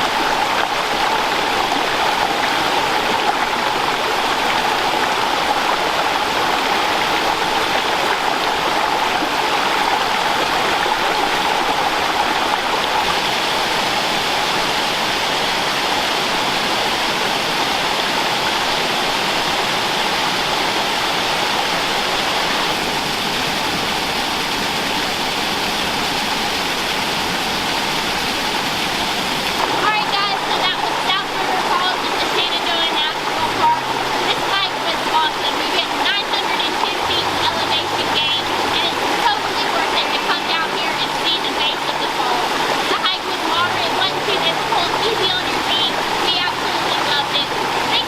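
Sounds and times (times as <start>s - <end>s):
river cascading: 0.0s - 48.0s
waterfall rushing: 0.0s - 48.0s.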